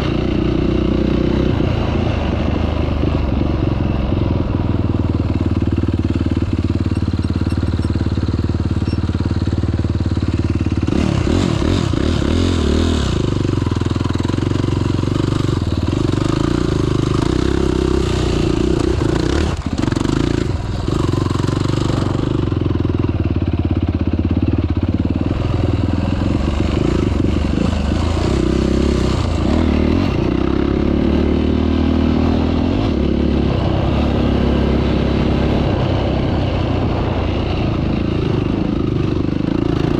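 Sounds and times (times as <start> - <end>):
off-road vehicle engine revving: 25.1 - 39.9.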